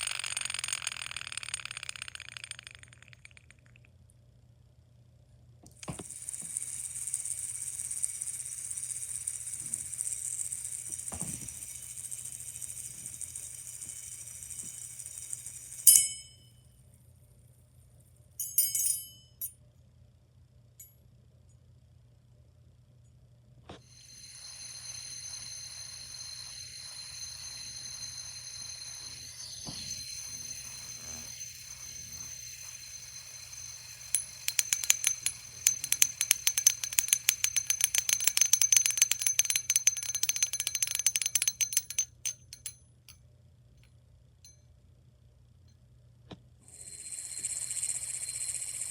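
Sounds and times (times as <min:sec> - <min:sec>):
fast rattle of clicks: 0:00.0 - 0:03.8, 0:30.5 - 0:42.8
fidget spinner whirring: 0:00.0 - 0:03.8, 0:05.8 - 0:15.9, 0:23.9 - 0:42.8.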